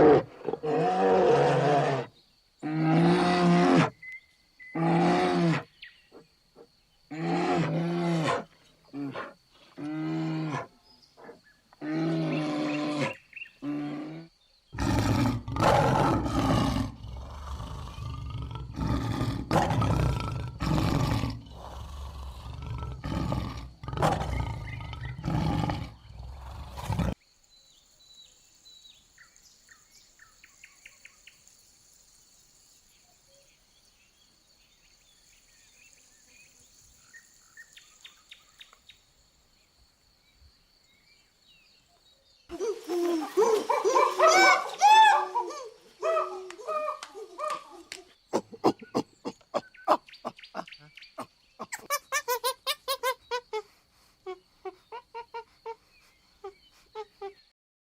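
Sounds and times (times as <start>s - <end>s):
faint chirps: 10.8s - 52.4s, 53.0s - 57.6s
lion roaring: 11.8s - 27.2s.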